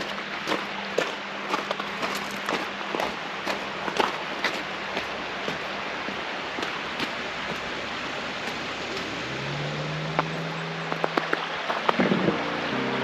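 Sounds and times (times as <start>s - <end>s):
stream water rushing: 0.0s - 13.0s
music: 12.2s - 13.0s.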